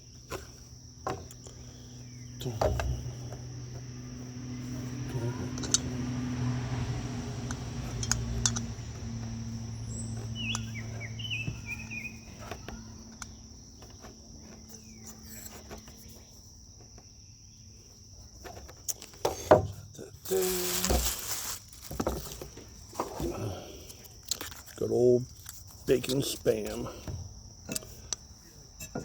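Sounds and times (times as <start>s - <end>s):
crickets chirring: 0.0s - 29.0s.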